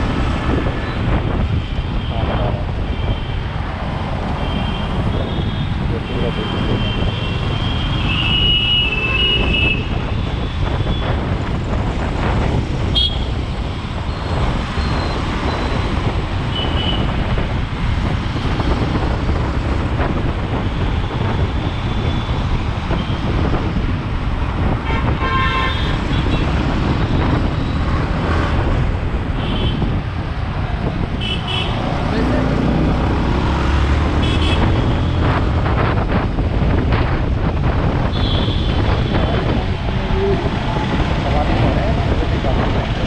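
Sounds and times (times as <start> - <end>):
motorcycle engine and wind noise: 0.0 - 43.0
vehicle horns tooting: 4.4 - 11.1, 12.9 - 13.3, 16.5 - 17.2, 24.8 - 26.6, 31.2 - 31.8, 34.2 - 35.2, 38.1 - 39.5.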